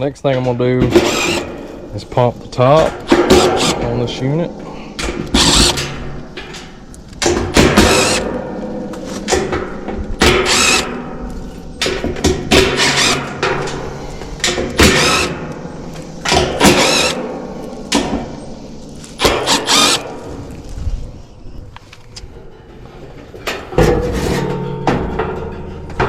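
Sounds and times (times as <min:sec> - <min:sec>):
power drill whirring: 0:01.0 - 0:01.4, 0:03.1 - 0:03.9, 0:05.2 - 0:05.9, 0:07.7 - 0:08.3, 0:10.3 - 0:10.9, 0:12.6 - 0:13.4, 0:14.8 - 0:15.5, 0:16.2 - 0:17.2, 0:19.2 - 0:20.3.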